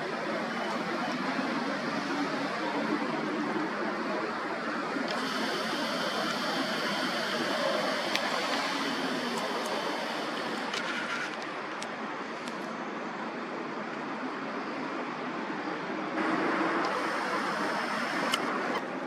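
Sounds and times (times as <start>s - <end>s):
steady outdoor rushing noise: 0.0s - 19.0s.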